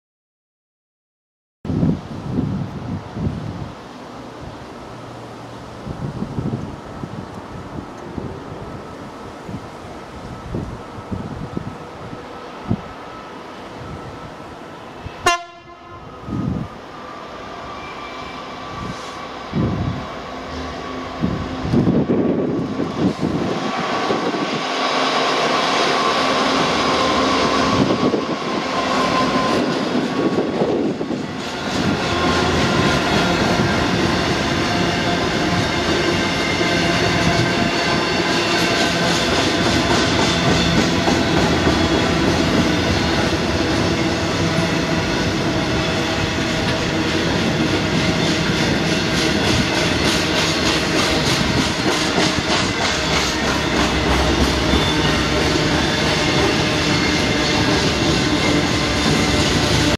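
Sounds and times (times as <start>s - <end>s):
diesel locomotive engine: 1.7s - 59.9s
wheels clacking over rail joints: 31.2s - 59.9s.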